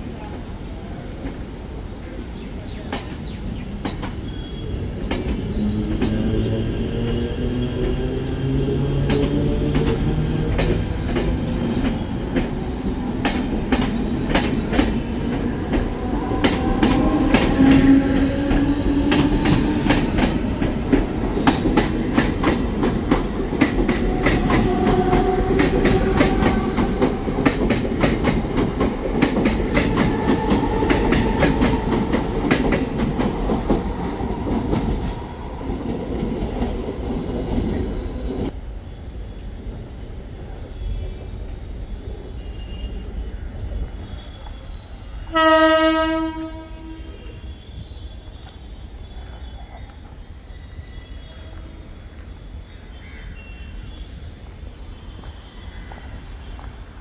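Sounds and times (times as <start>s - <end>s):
train rumble: 0.0s - 53.0s
train wheels clattering: 2.7s - 7.2s, 8.7s - 37.8s.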